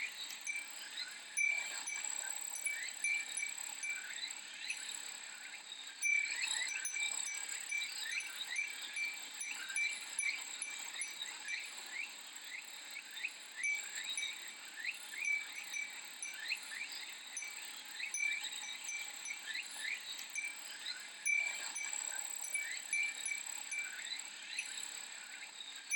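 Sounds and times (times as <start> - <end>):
wind chime ringing: 0.0 - 0.8, 1.4 - 4.8, 6.0 - 11.6, 13.6 - 14.5, 15.1 - 24.8
cicadas shrilling: 0.0 - 12.4, 13.0 - 24.8.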